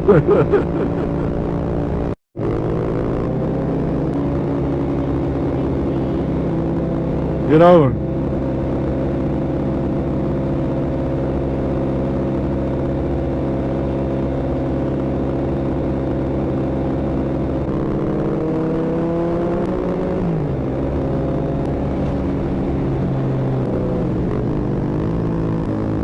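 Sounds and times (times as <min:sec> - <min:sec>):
passing engine pitch gliding: 0:00.0 - 0:14.6
motorcycle engine running: 0:00.0 - 0:26.0.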